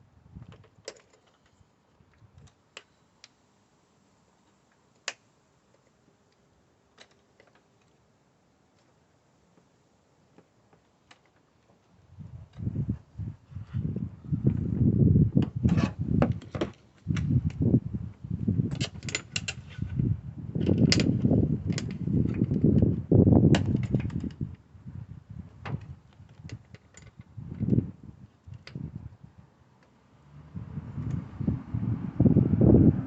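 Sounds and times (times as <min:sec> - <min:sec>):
things being handled with clicks: 0:00.4 - 0:03.4, 0:04.4 - 0:08.0, 0:10.3 - 0:11.9, 0:18.7 - 0:19.9, 0:20.6 - 0:22.6, 0:25.7 - 0:27.7
low rumbling: 0:30.3 - 0:33.0.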